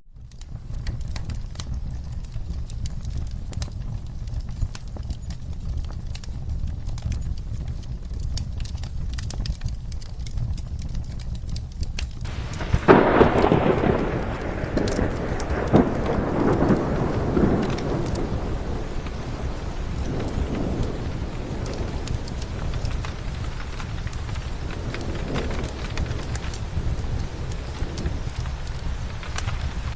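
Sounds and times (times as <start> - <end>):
low background rumble: 0.1 - 29.9
steady rain: 0.1 - 29.9
thunder clap rolling: 12.2 - 29.9.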